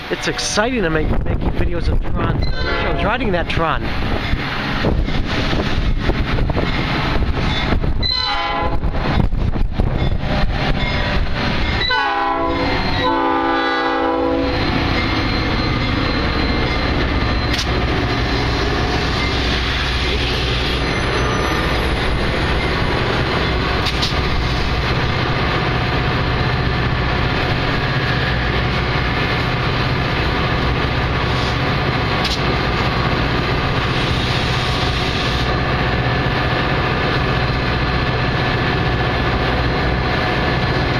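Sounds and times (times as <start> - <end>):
locomotive engine rumble: 0.0 - 40.9
train rolling: 0.0 - 40.9
train horn blasts: 2.4 - 3.2, 8.0 - 8.9, 11.8 - 14.7.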